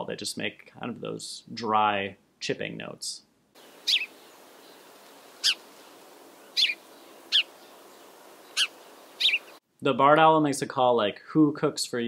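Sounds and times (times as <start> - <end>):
faint steady hiss: 0.0 - 12.0
sparrow chipping: 3.6 - 9.6.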